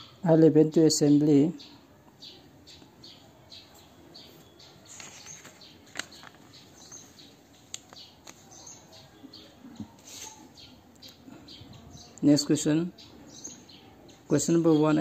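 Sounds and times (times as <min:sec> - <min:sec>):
small birds chirping: 0:00.0 - 0:15.0
paper pages turning: 0:04.8 - 0:08.5, 0:10.0 - 0:10.4.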